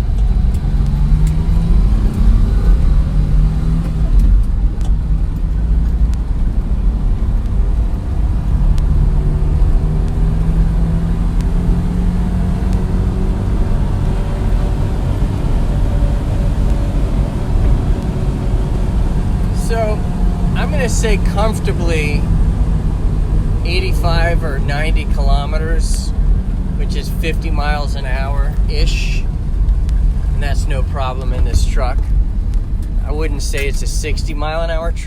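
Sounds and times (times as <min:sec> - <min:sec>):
road rumble: 0:00.0 - 0:35.0
truck engine running: 0:00.0 - 0:35.0.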